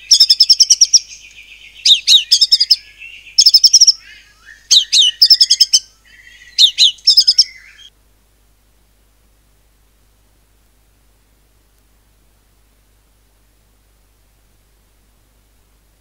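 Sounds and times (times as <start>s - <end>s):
songbird singing whistled phrases: 0.0s - 7.9s.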